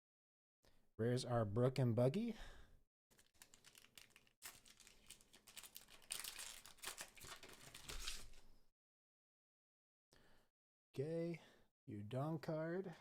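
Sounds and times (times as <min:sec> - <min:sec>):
foil wrapper crinkling: 0:03.1 - 0:08.4.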